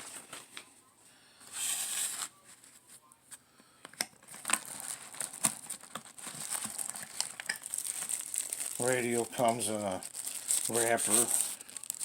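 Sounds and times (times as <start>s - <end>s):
packaging crinkling: 4.2s - 12.0s.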